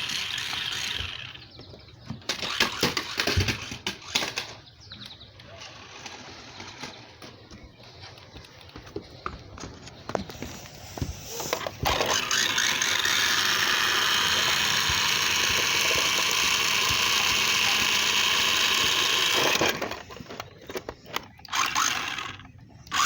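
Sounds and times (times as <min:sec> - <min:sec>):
rc car electric motor whining: 0:00.0 - 0:01.5, 0:02.3 - 0:04.6, 0:10.8 - 0:20.4, 0:21.5 - 0:23.0.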